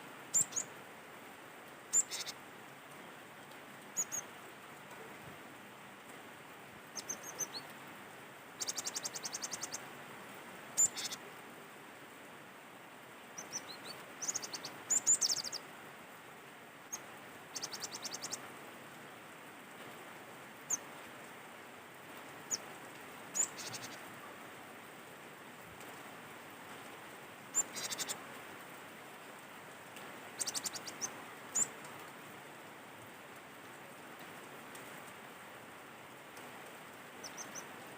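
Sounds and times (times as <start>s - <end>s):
background hiss: 0.0s - 37.9s
bird chirping: 0.3s - 0.7s, 1.9s - 2.4s, 4.0s - 4.2s, 8.6s - 9.8s, 10.8s - 11.2s, 13.4s - 15.6s, 23.3s - 24.0s, 27.6s - 28.1s, 30.4s - 31.7s, 37.2s - 37.7s.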